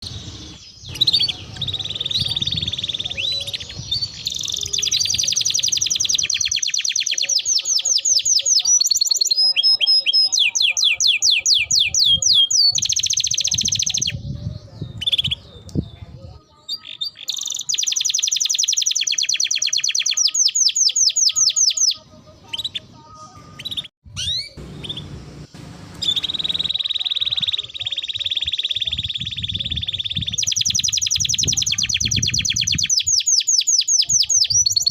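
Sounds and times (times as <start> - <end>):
canary singing trills: 0.0 - 25.2, 26.0 - 34.9.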